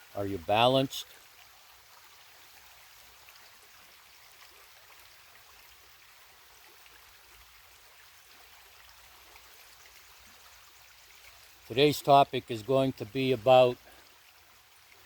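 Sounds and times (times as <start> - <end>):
creek water running: 0.0 - 15.0.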